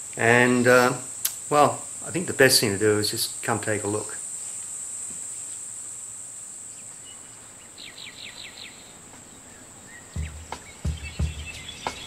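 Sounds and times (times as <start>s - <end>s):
short insect chirps: 0.0s - 12.0s
low thumps: 10.2s - 12.0s.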